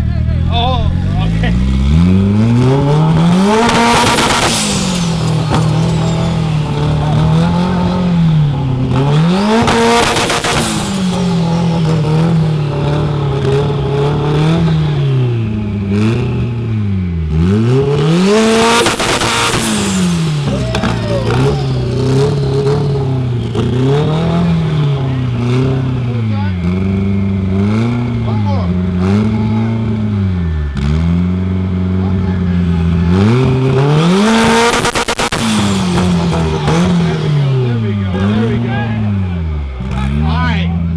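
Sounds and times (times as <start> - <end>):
exhaust crackling pops: 0.0 - 40.2
car engine revving: 0.0 - 40.9.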